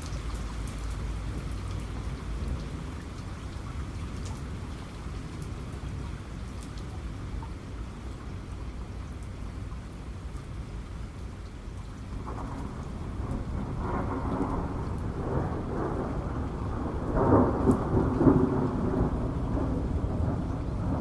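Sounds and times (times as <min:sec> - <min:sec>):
steady rain: 0:00.0 - 0:21.0
thunder rumbling: 0:12.2 - 0:21.0.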